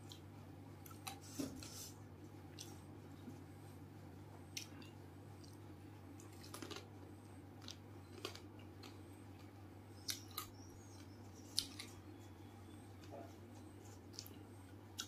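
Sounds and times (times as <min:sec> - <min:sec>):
faint low hum: 0:00.0 - 0:15.0
person chewing crunchy food: 0:04.5 - 0:15.0.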